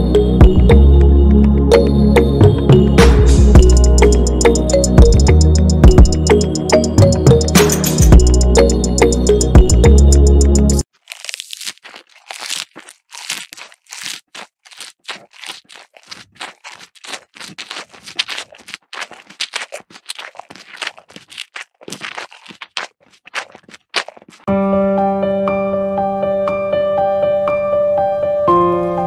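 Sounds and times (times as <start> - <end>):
crunchy chewing: 3.5 - 24.5.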